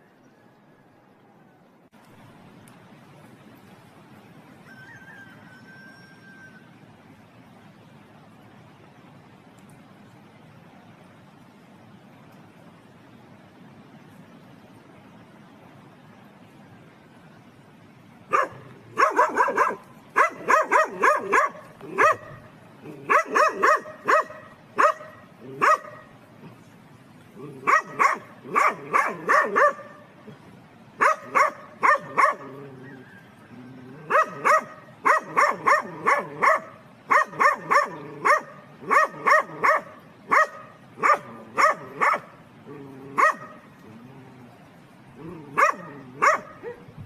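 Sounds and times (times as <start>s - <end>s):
dog barking: 18.3s - 26.1s, 27.6s - 30.0s, 31.0s - 33.0s, 34.0s - 42.3s, 43.2s - 43.6s, 45.5s - 46.9s.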